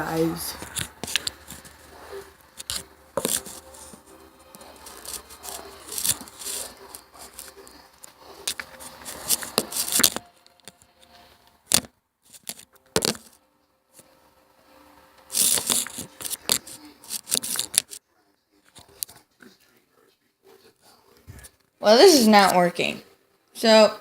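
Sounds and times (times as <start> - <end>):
phone being handled: 0.6 - 10.8, 11.7 - 13.4, 15.3 - 18.0.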